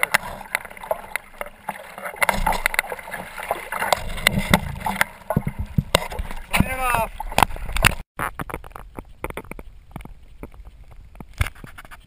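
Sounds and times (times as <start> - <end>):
water splashing around kayak: 0.0 - 12.0.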